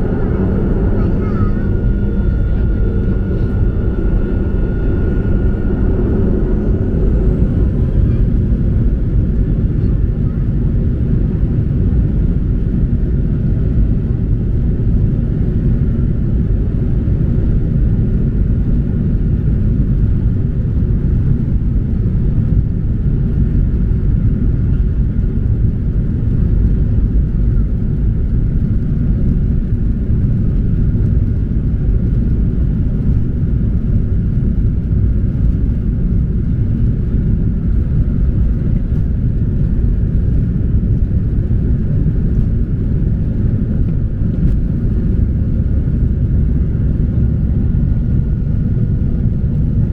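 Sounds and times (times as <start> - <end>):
faint steady whine: 0.0 - 13.0, 24.0 - 49.9
airplane cabin engine drone: 0.0 - 49.9.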